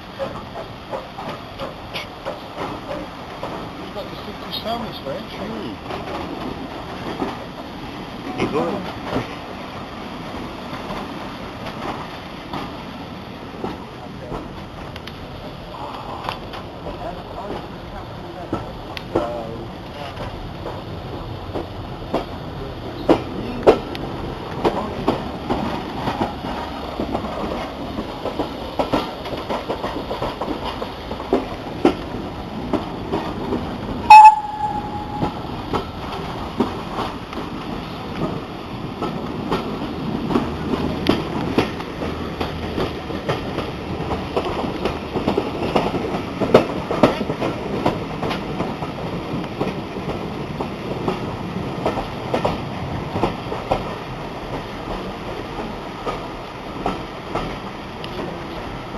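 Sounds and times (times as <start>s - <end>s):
railway carriage rumbling: 0.0s - 58.9s
wheels clacking over rail joints: 0.0s - 58.9s
brief ringing tone: 34.1s - 35.5s.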